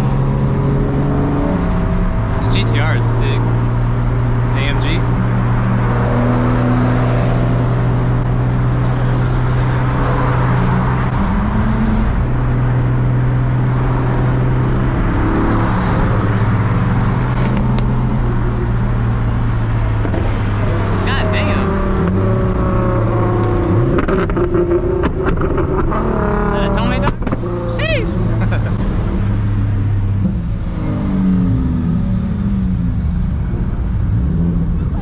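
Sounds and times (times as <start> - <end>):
car engine cruising drone: 0.0 - 35.0.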